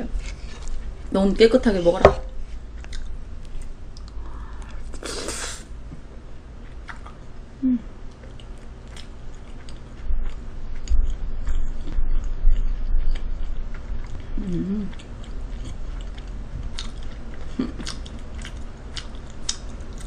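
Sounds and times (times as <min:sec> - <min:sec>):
person chewing food: 0:02.5 - 0:05.6, 0:06.6 - 0:07.2, 0:08.0 - 0:20.0
short hiss: 0:05.0 - 0:05.7
low throat hum: 0:07.5 - 0:08.0, 0:10.0 - 0:18.1.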